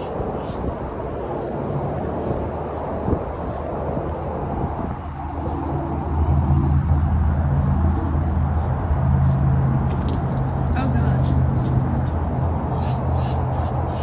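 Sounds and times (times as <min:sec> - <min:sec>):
low engine hum: 0:00.9 - 0:14.0.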